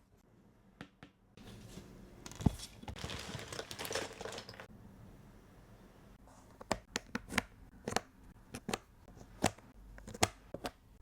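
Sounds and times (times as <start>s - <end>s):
puzzle pieces rustling: 2.9s - 4.7s.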